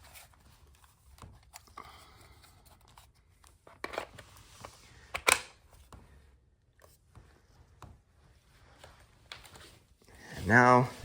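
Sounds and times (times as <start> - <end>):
battery latch click: 5.2 - 5.5.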